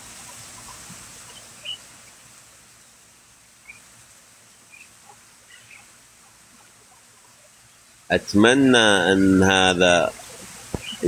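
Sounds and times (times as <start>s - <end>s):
outdoor hiss: 0.0s - 11.0s
faint bird chirps: 0.2s - 1.9s, 3.6s - 6.0s, 10.1s - 11.0s.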